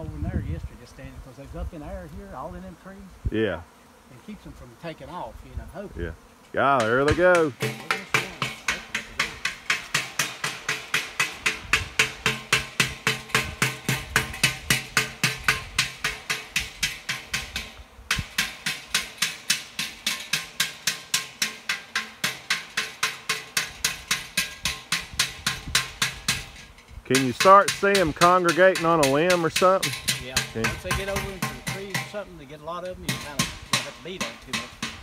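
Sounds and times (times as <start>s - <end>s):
metal beaten rapidly: 6.6s - 32.3s, 32.9s - 35.0s.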